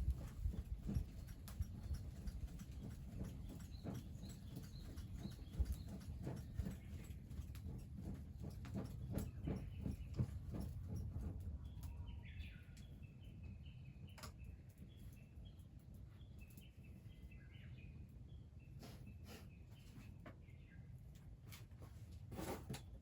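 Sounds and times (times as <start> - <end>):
faint bird chirping: 11.6 - 21.3.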